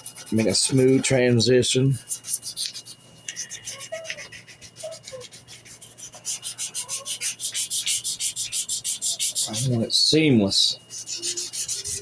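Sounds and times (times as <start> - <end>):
sandpaper rubbing on wood: 0.0 - 9.8, 10.9 - 12.0.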